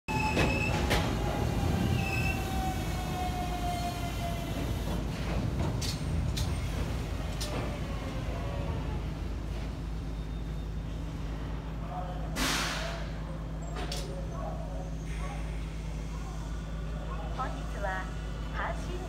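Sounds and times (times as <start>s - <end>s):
train rumbling: 0.1s - 14.2s.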